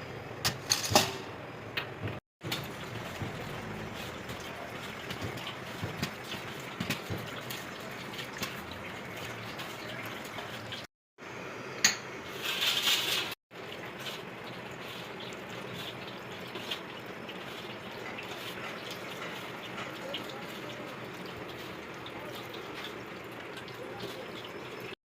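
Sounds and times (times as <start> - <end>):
liquid splashing and trickling: 2.4 - 10.9, 13.5 - 25.0.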